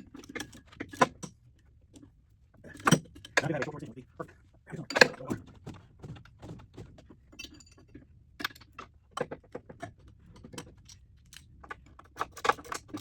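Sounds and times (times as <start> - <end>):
metal tools clinking and knocking: 4.8 - 5.4.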